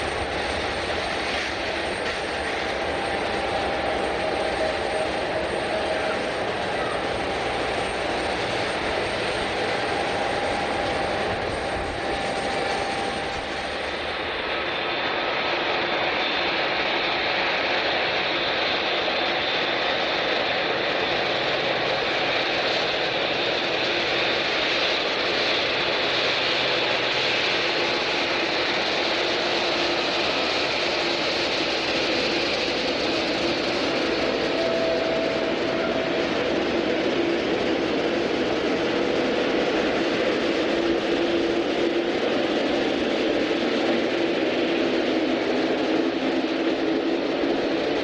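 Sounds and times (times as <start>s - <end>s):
jet engines running: 0.0s - 48.0s.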